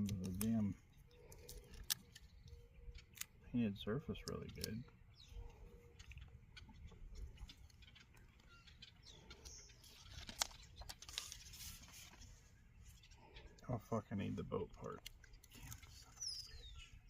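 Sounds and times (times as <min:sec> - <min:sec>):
paper scratching and rustling: 0:09.8 - 0:13.0.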